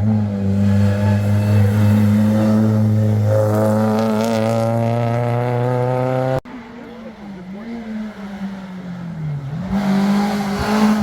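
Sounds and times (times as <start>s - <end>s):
car engine at high revs: 7.6s - 11.0s.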